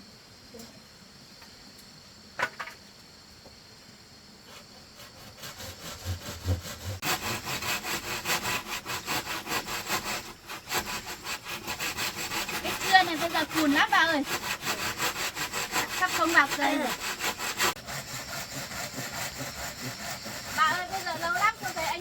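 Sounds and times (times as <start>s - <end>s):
hand saw cutting bamboo: 4.5s - 22.0s.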